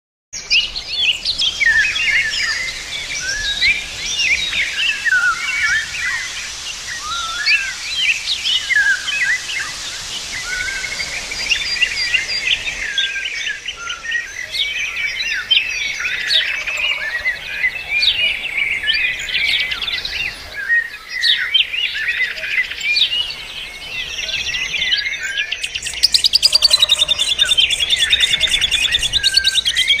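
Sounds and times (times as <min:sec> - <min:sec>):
songbirds chorus: 0:00.4 - 0:30.0
fast pulsed bird trill: 0:22.2 - 0:30.0.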